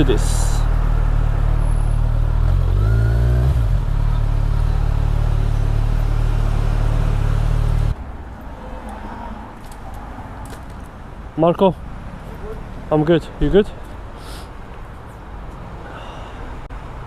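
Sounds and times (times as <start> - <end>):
motorcycle engine idling and revving: 0.0 - 8.0.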